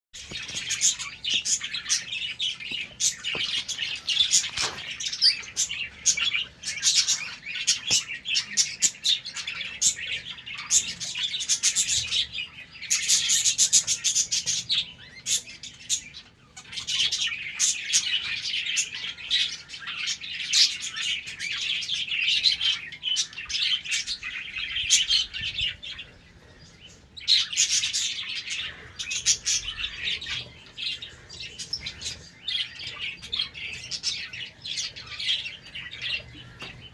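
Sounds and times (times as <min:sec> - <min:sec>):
budgerigars chirping and chattering: 0:00.2 - 0:36.9.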